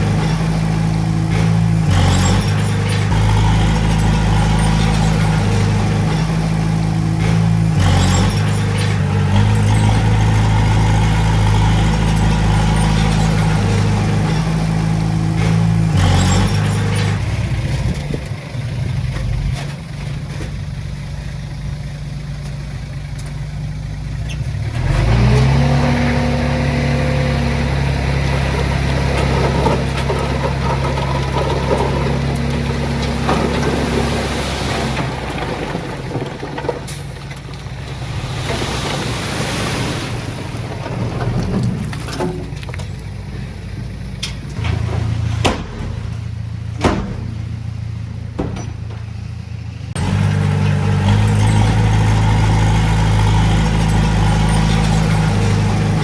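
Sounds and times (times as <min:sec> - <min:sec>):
heavy diesel engine running: 0:00.0 - 0:56.0
knocks: 0:46.8 - 0:47.5, 0:48.4 - 0:49.1.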